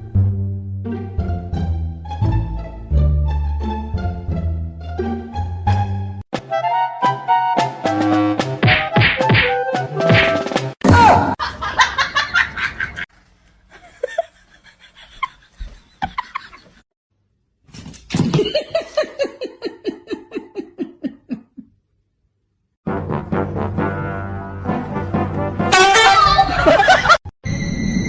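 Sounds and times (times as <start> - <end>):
person laughing: 11.4 - 13.1, 13.7 - 16.8, 18.2 - 21.8, 26.4 - 27.2.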